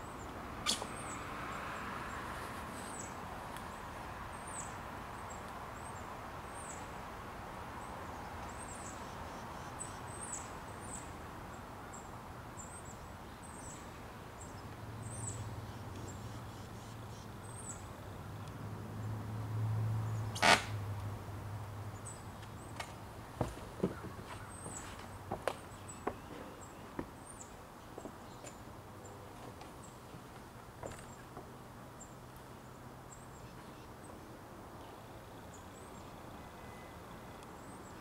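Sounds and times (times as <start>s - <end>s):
small bird chirping: 0.1s - 1.2s.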